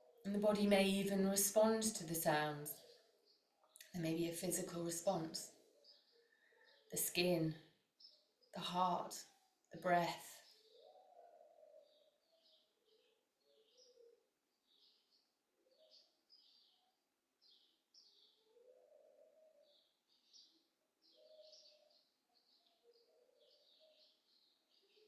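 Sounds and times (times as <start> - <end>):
faint birdsong chirps: 0.0 - 25.0.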